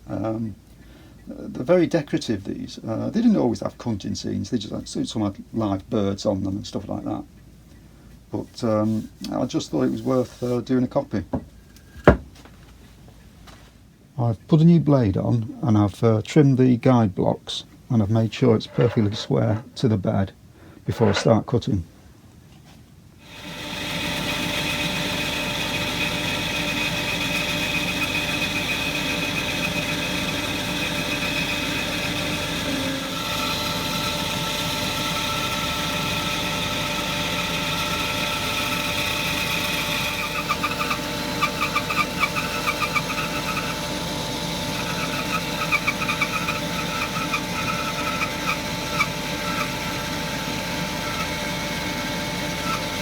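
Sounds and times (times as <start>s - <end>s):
bandsaw cutting wood: 23.2s - 53.0s
blade rasping chatter: 23.6s - 53.0s.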